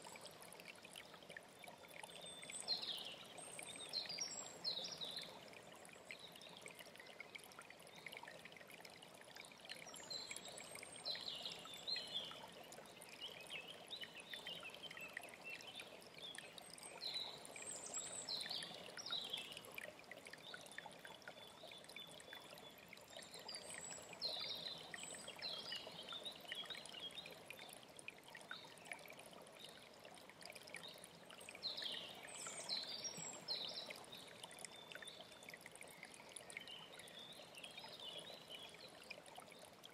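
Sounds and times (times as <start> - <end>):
stream flowing: 0.0 - 39.9
songbird singing: 31.6 - 38.8.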